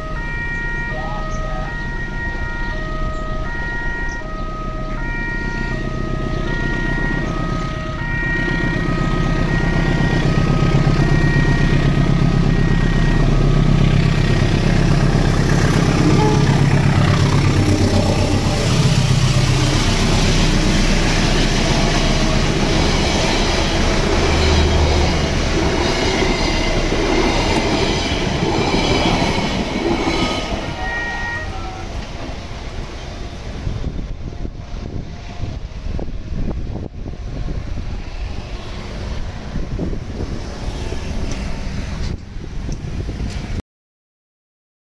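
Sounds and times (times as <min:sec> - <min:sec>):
train engine rumbling: 0:00.0 - 0:43.6
train wheels clattering on rails: 0:13.7 - 0:33.6.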